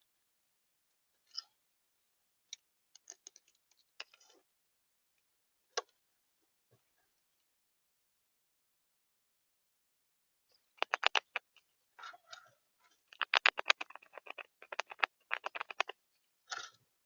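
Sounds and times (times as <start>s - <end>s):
birds pecking at feeder: 10.8s - 12.2s, 13.2s - 15.9s.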